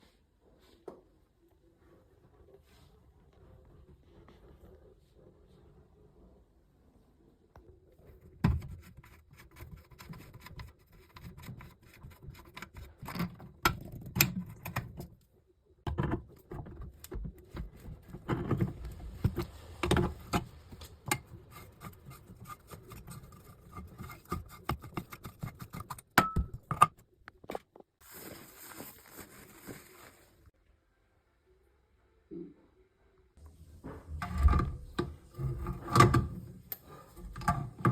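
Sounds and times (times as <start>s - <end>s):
scraping: 15.9s - 26.7s, 33.7s - 37.9s.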